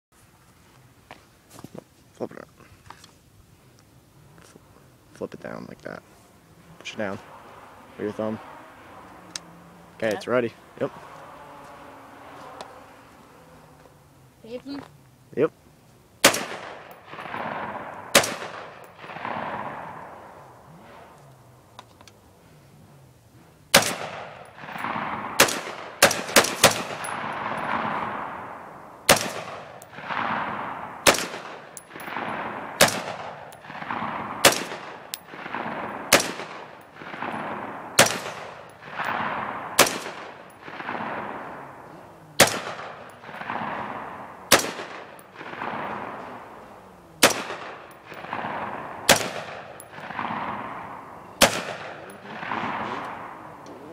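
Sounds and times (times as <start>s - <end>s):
rifle gunshots with echo: 16.2s - 21.2s, 23.7s - 53.7s.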